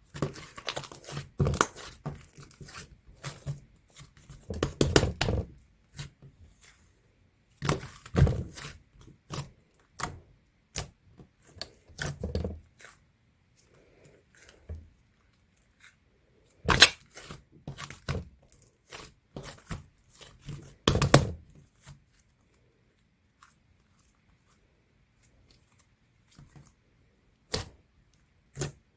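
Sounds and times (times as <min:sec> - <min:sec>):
slime squishing and tearing: 0:00.1 - 0:05.2, 0:16.6 - 0:18.1.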